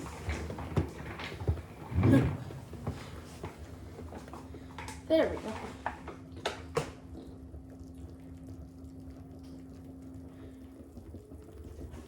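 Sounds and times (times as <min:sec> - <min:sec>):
washing machine humming: 0:00.0 - 0:05.8.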